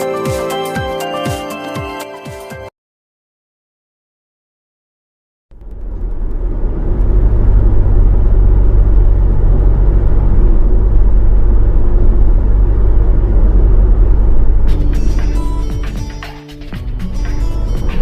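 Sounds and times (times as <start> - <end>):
vehicle rumble: 5.5 - 18.0.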